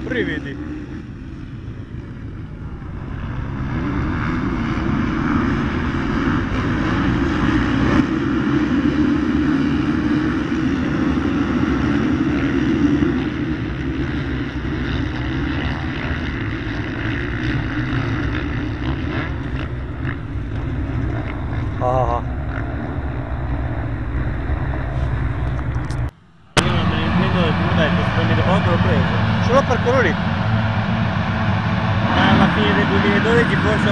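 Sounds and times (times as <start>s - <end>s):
motocross bikes racing: 0.0s - 33.9s.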